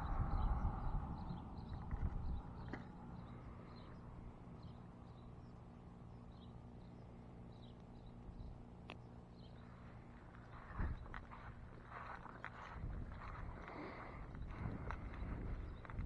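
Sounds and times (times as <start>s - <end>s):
small bird chirping: 0.0s - 11.5s
low steady hum: 0.0s - 16.0s.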